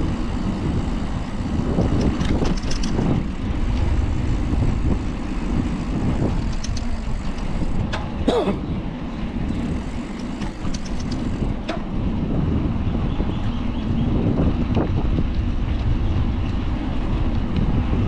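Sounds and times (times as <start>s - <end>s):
bicycle rattling clicks: 0.0s - 8.2s, 9.2s - 12.2s
road noise: 0.0s - 18.0s
wind rumble on microphone: 0.0s - 18.0s.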